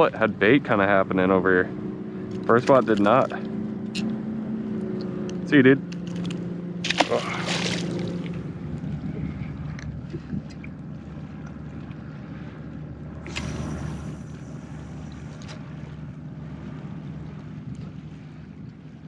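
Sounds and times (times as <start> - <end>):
low hum: 0.0 - 19.0
small boat on water: 0.0 - 19.0
wind buffeting microphone: 7.8 - 19.0.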